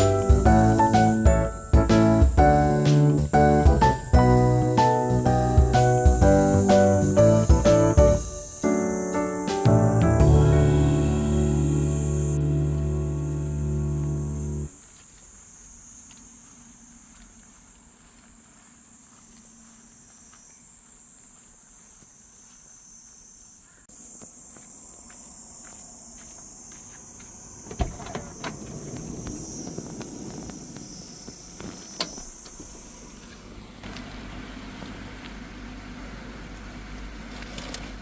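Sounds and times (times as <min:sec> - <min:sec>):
music: 0:00.0 - 0:14.7
crickets chirping: 0:00.0 - 0:33.8.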